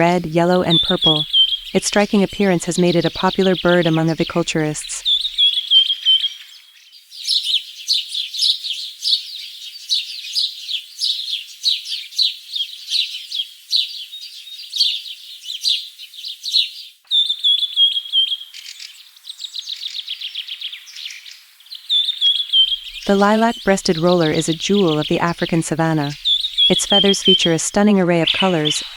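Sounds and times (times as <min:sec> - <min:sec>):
falling bird trill: 0:00.0 - 0:05.8, 0:22.3 - 0:28.9
songbird chirping: 0:00.0 - 0:28.9.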